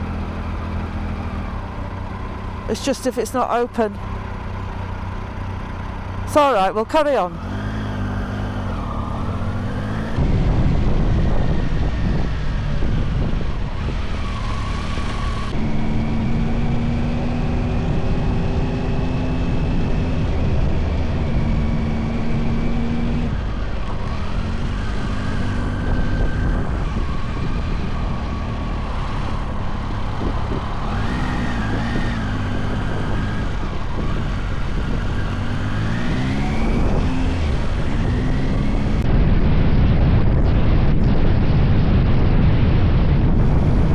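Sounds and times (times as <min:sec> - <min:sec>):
motorcycle engine changing gear: 0:07.4 - 0:10.2
wind on microphone: 0:09.2 - 0:14.2, 0:36.1 - 0:43.9.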